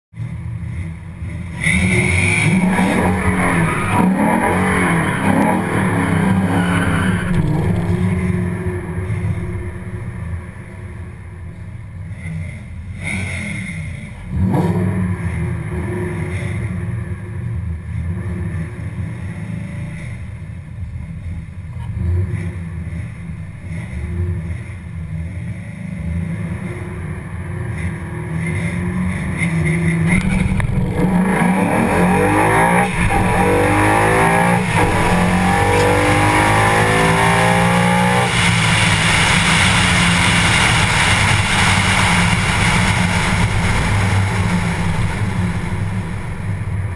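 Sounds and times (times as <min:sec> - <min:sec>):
car engine revving: 0:00.2 - 0:46.9
wind rush: 0:32.7 - 0:46.9.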